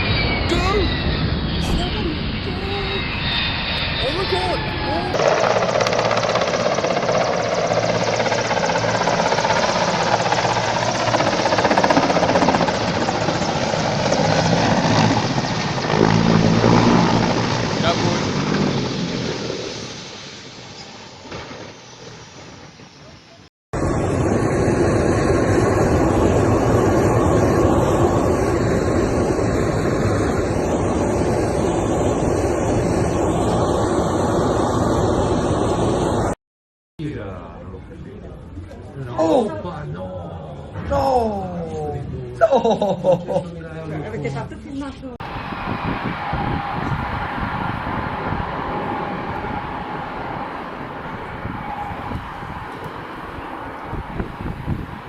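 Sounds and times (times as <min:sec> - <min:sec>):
low hum: 0:00.0 - 0:21.0, 0:45.2 - 0:55.0
aircraft noise with flutter: 0:00.0 - 0:36.4, 0:45.2 - 0:55.0.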